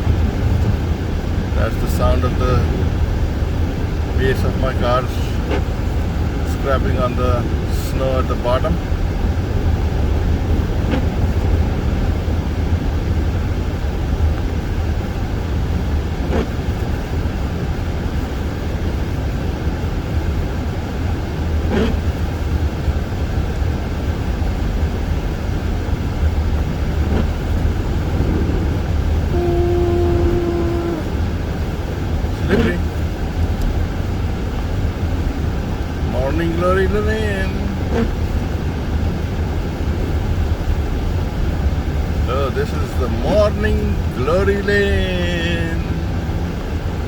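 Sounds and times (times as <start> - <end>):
car tyre rumble: 0.0 - 47.0
steady tone: 26.6 - 32.9.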